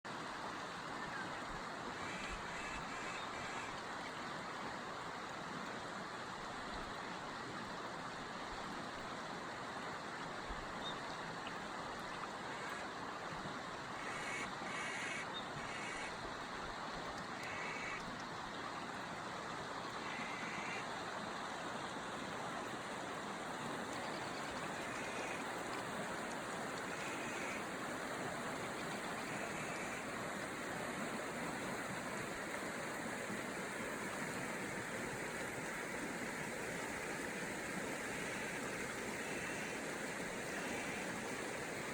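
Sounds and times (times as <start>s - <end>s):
flowing water rushing: 0.1s - 41.9s
bird short repeated calls: 14.0s - 16.1s, 17.5s - 18.0s, 26.9s - 27.6s.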